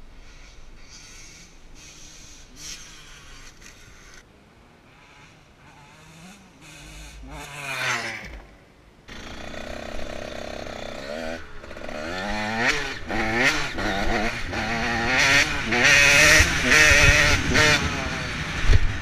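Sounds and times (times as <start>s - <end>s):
motorcycle engine revving: 4.9s - 19.0s.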